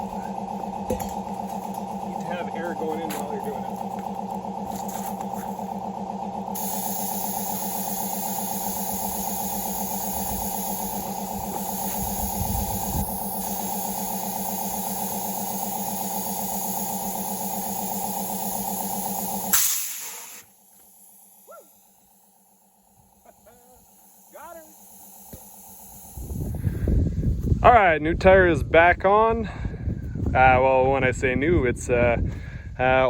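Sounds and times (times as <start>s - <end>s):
tire bead seating bang: 0.0s - 21.4s
engine hum: 0.0s - 33.0s
compressed air hissing into tire: 6.5s - 27.6s.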